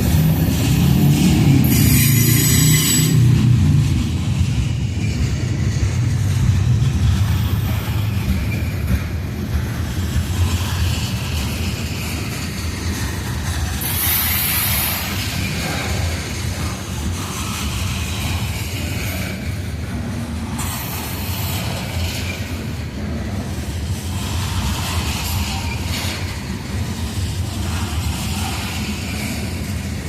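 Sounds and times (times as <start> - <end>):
train wheels rumbling on rail: 0.0 - 30.0
high ringing squeal: 1.7 - 3.6.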